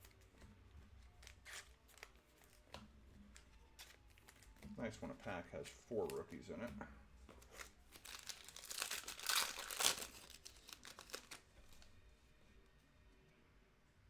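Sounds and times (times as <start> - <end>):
wrapper tearing and crinkling: 1.2 - 2.6, 7.4 - 11.9.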